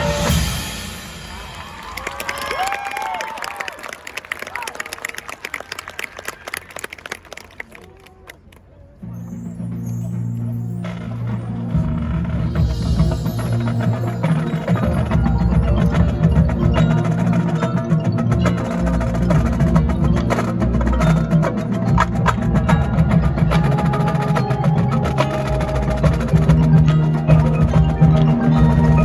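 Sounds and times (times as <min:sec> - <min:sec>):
marching band playing: 0:00.0 - 0:01.9, 0:09.2 - 0:29.0.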